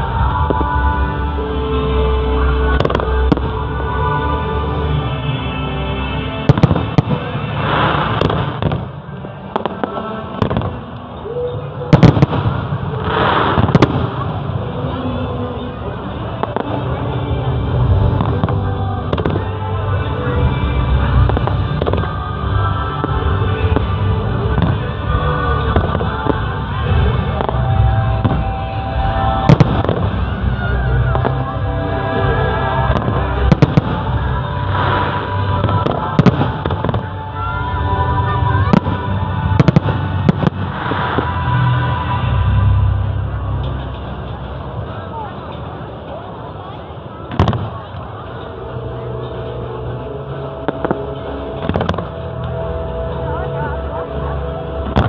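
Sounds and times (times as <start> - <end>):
fizzing crackle of fireworks: 0.0 - 4.1, 6.4 - 55.0
music playing: 0.0 - 55.0
fireworks bursting in bangs: 11.9 - 14.5, 38.6 - 41.7, 47.3 - 47.9.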